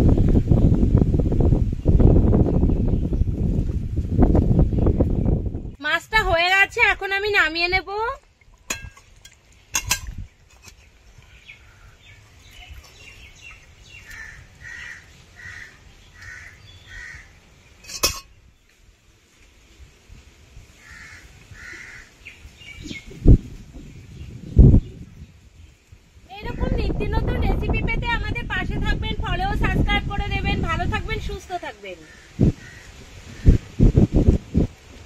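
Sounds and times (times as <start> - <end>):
bird calling: 10.6 - 18.5.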